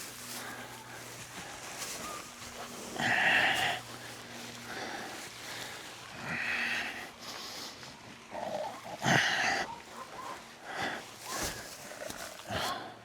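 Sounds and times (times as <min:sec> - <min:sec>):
goats and sheep bleating: 0:00.0 - 0:07.1.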